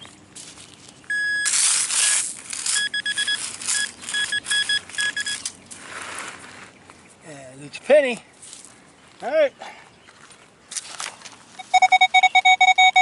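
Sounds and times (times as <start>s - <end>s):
metal detector beeping: 1.1s - 5.6s, 11.6s - 13.0s
digging in soil: 1.2s - 6.8s.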